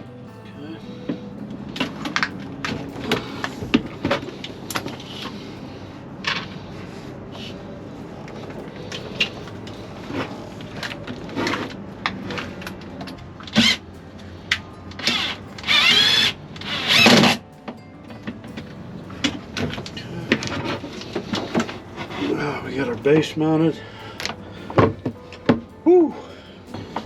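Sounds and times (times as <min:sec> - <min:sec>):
power drill driving screws: 0:15.1 - 0:17.4.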